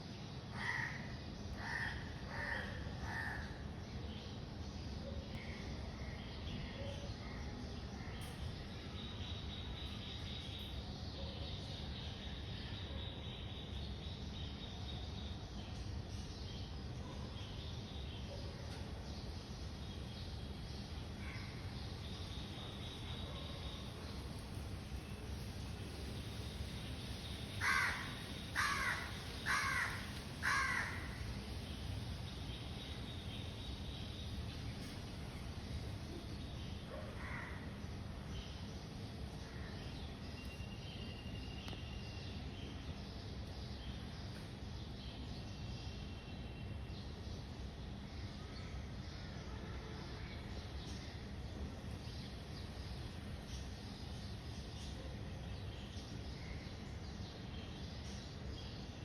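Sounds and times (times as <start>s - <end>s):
insects chirring: 26.0s - 33.8s
faint bird calls: 27.6s - 31.3s.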